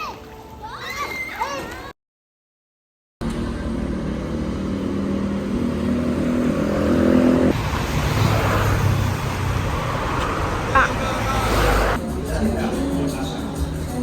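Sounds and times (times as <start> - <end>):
vehicle engine running: 3.2 - 7.4.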